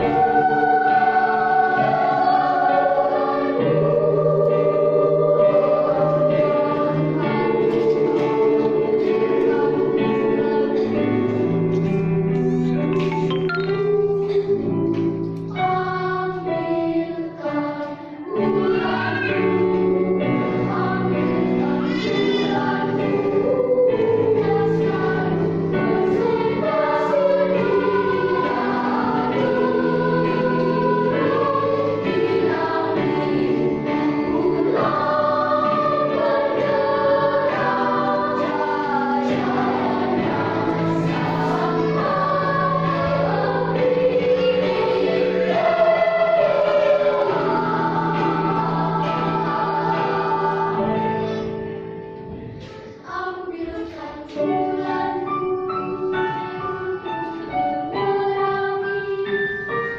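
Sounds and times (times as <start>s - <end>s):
children's choir singing: 0.0s - 59.9s.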